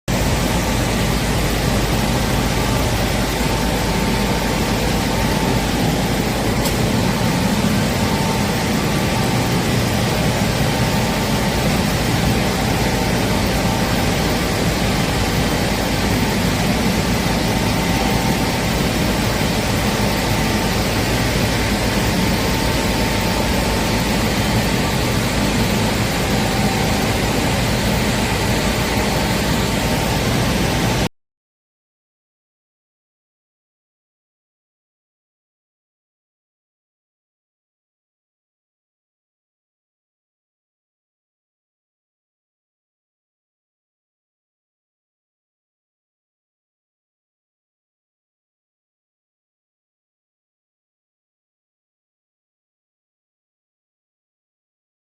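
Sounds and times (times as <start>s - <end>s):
loud steady machine noise: 0.1s - 31.1s.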